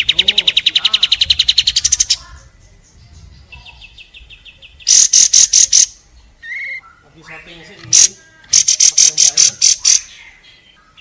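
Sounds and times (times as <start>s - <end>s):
bird singing rapid trills: 0.0s - 11.0s
harsh bird notes: 3.4s - 11.0s.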